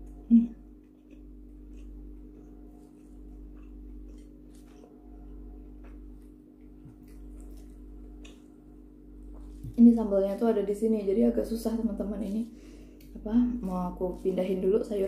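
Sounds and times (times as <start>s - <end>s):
person chewing food: 0.0s - 9.8s
steady low hum: 0.0s - 15.0s.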